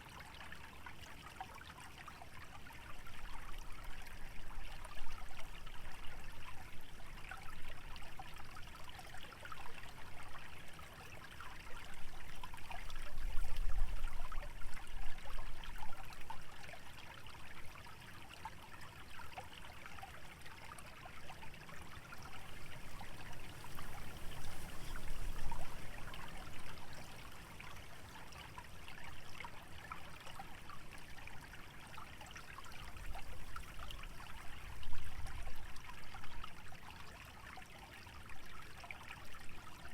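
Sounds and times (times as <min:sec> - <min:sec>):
stream trickling: 0:00.0 - 0:39.9
wind gusts: 0:22.4 - 0:27.4.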